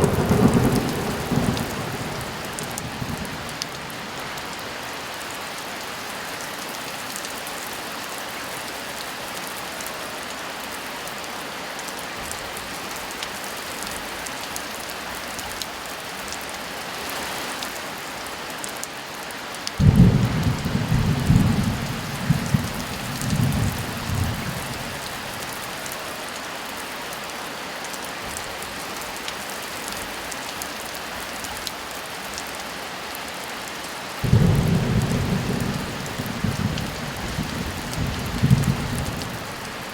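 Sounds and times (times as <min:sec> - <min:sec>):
thunder rumbling: 0:00.0 - 0:04.0, 0:19.8 - 0:25.8, 0:34.2 - 0:39.9
heavy rain falling: 0:00.0 - 0:39.9.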